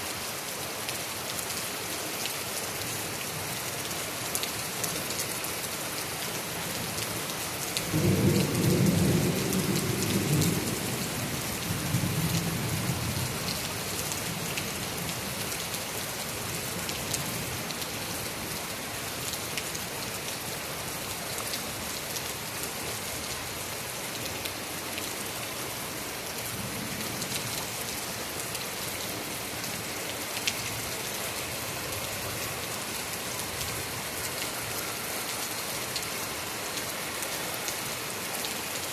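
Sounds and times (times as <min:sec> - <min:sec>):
heavy rain falling: 0:00.1 - 0:38.9
rolling rumble of thunder: 0:07.9 - 0:13.2.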